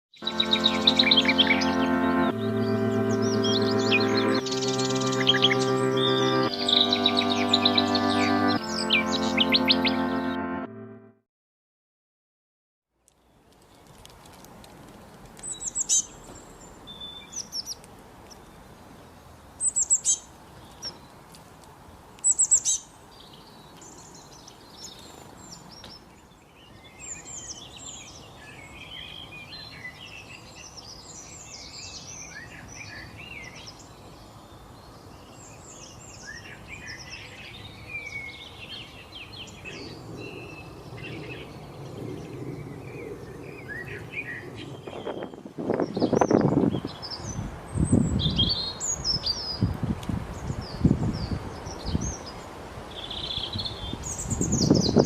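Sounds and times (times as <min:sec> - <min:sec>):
outdoor background noise: 0:12.9 - 0:55.0.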